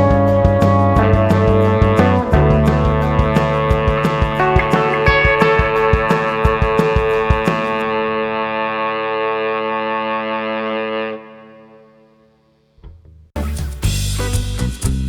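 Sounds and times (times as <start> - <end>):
distorted electric guitar rock: 0.0 - 10.2.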